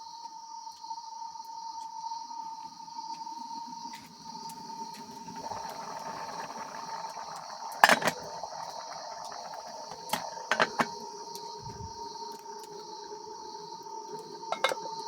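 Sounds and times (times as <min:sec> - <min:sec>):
insects chorus: 0:00.0 - 0:15.0
mid-pitched drone: 0:05.3 - 0:15.0.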